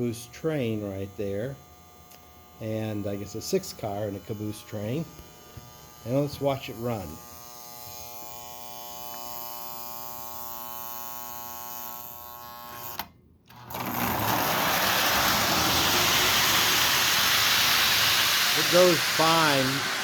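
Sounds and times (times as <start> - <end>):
steady electric buzz: 0.0 - 20.0
model train rumbling on track: 13.7 - 20.0.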